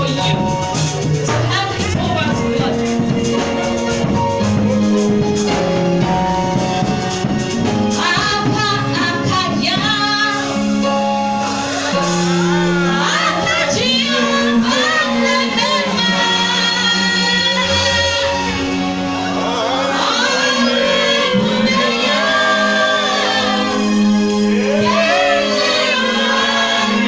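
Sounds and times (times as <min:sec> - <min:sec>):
woman singing gospel song: 0:00.0 - 0:03.4, 0:07.9 - 0:10.7, 0:12.0 - 0:18.7, 0:19.4 - 0:23.9, 0:24.7 - 0:27.0
backing instruments: 0:00.0 - 0:27.0.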